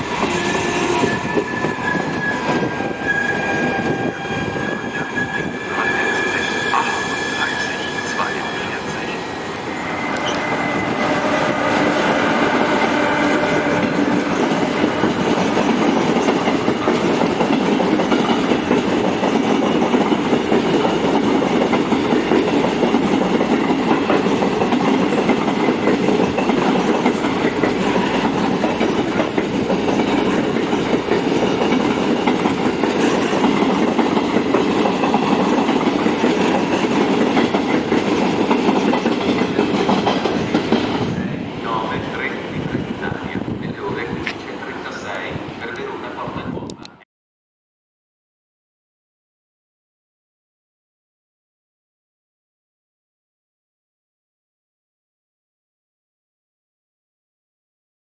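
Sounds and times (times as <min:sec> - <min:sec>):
train wheels clattering over rail joints: 0:11.0 - 0:41.4.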